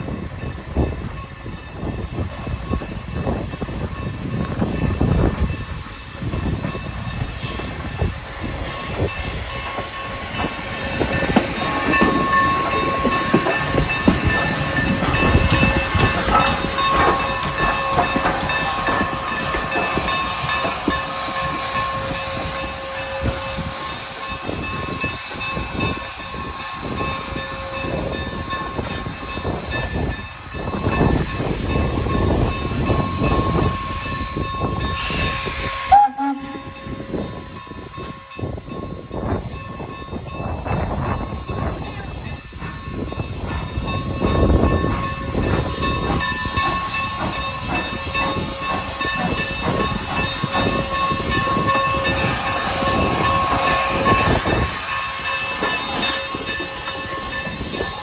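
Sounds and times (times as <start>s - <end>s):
steam locomotive chuffing: 0.0s - 58.0s
burst of hissing steam: 34.8s - 36.7s.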